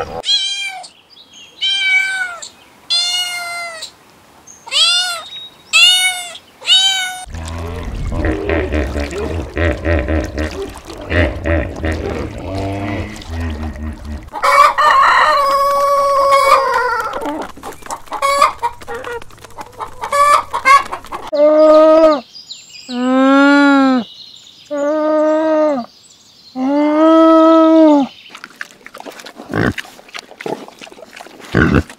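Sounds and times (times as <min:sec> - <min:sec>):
chickens clucking: 0:07.3 - 0:21.4
rooster crowing: 0:14.3 - 0:17.3.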